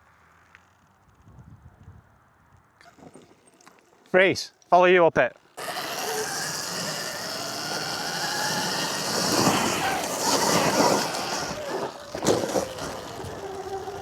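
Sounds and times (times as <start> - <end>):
tyre and wind noise: 0.8 - 3.6, 5.6 - 14.0
faint electric motor whine: 5.5 - 14.0.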